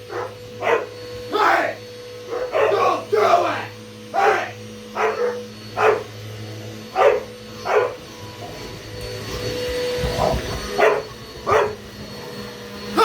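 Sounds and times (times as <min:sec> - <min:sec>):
vacuum cleaner motor hum: 0:00.0 - 0:13.0
dog barking: 0:00.1 - 0:00.9, 0:02.3 - 0:03.0, 0:04.1 - 0:06.1, 0:06.9 - 0:08.6, 0:10.1 - 0:11.8.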